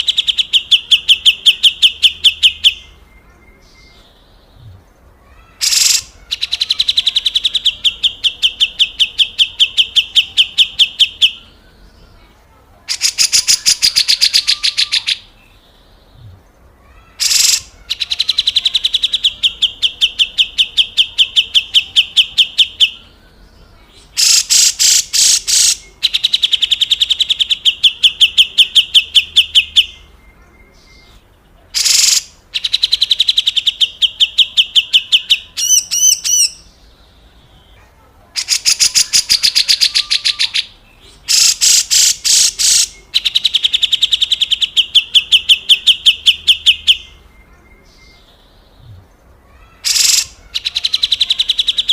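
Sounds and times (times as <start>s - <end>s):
bird harsh rasping chatter: 5.3s - 11.4s, 12.9s - 15.3s, 16.8s - 23.0s, 24.0s - 29.8s, 31.8s - 36.7s, 38.4s - 47.0s, 49.5s - 51.9s.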